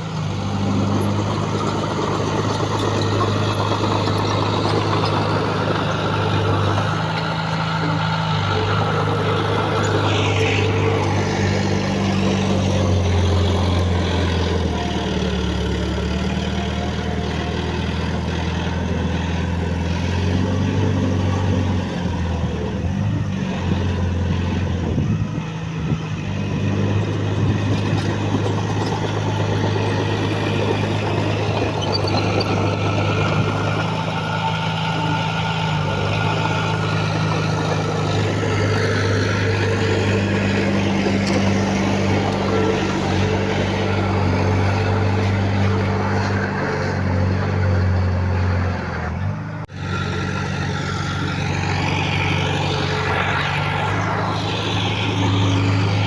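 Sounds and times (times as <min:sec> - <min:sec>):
heavy diesel machine engine: 0:00.0 - 0:56.0.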